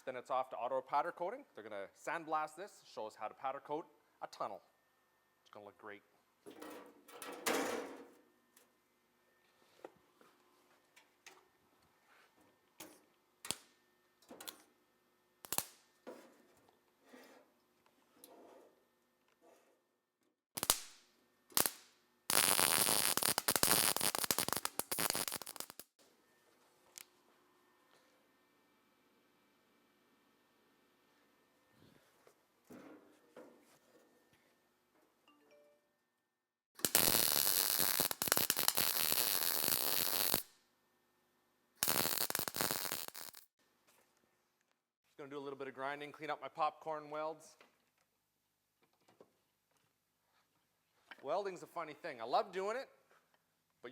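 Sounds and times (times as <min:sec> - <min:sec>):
arc welder crackling: 0:15.4 - 0:15.9, 0:20.6 - 0:25.9, 0:36.8 - 0:40.5, 0:41.8 - 0:43.5.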